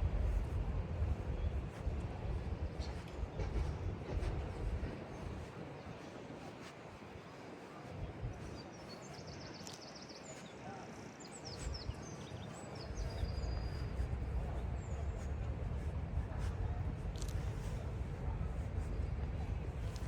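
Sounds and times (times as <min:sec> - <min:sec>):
low rumble: 0:00.0 - 0:05.4
steady outdoor hum: 0:00.0 - 0:20.0
small songbirds chirping: 0:07.6 - 0:15.4.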